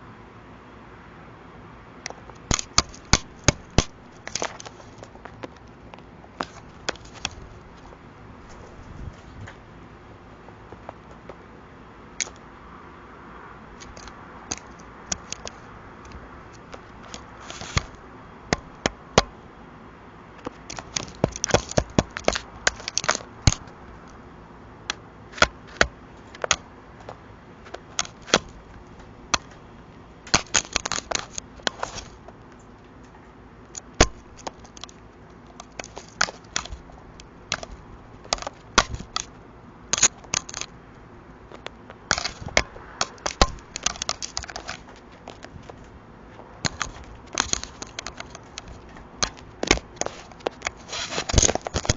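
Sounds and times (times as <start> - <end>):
crow pecking at a camera: 2.0 - 8.8, 12.2 - 12.5, 13.7 - 19.4, 20.4 - 24.2, 24.8 - 29.6, 30.2 - 32.9, 33.7 - 40.8, 41.5 - 51.9.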